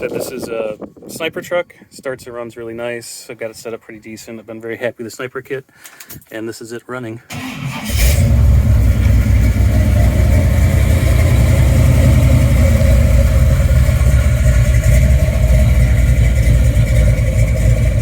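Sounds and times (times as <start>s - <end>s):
big engine idling: 8.2s - 18.0s.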